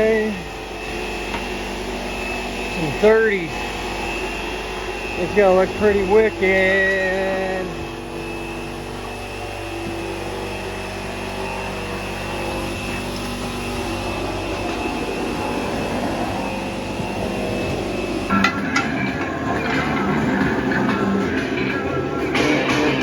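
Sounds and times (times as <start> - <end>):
machine drone with held tones: 0.0 - 23.0
music: 18.3 - 23.0.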